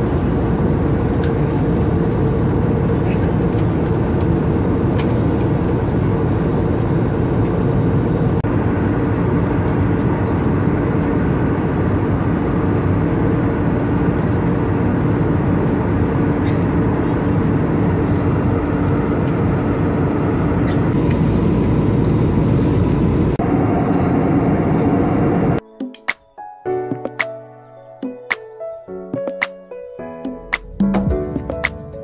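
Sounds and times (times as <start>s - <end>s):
aircraft cabin engine and airflow rush: 0.0s - 25.6s
low hum: 0.0s - 25.6s.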